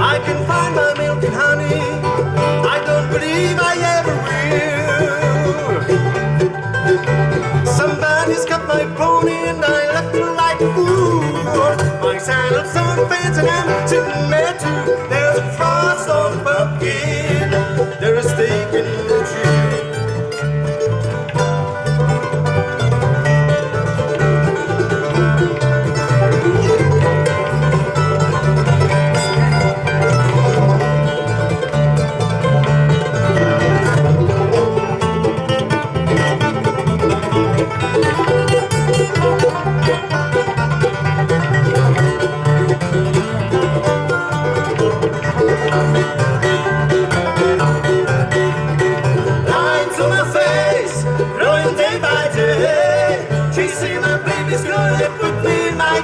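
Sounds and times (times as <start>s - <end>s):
person singing: 0.0s - 6.1s, 7.6s - 19.9s, 49.4s - 56.0s
bluegrass band with banjo and guitar: 0.0s - 56.0s.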